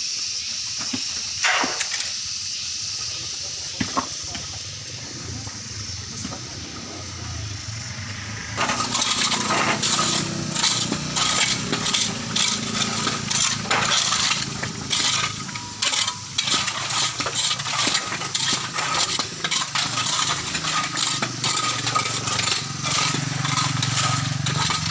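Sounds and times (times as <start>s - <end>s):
metal tools scraping stone and gravel: 5.7s - 24.9s.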